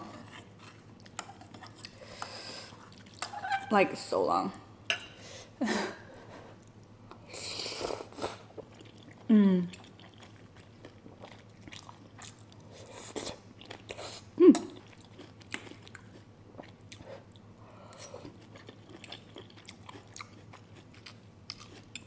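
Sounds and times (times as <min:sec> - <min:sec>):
person chewing and smacking: 0:00.9 - 0:02.0, 0:02.7 - 0:03.4, 0:08.5 - 0:17.4, 0:18.2 - 0:22.0.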